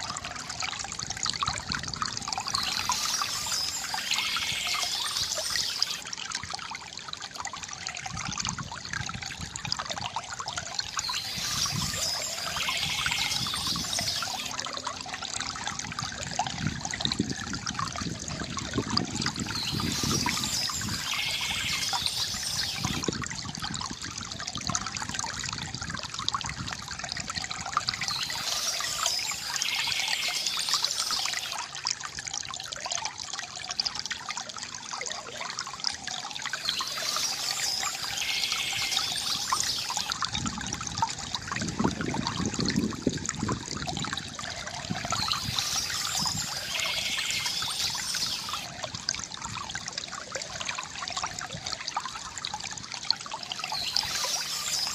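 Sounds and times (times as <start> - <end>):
stream trickling and gurgling: 0.0 - 54.9
birdsong: 2.3 - 6.0, 10.9 - 14.6, 19.2 - 23.1, 27.8 - 31.6, 36.5 - 40.2, 44.9 - 48.7, 53.5 - 54.9.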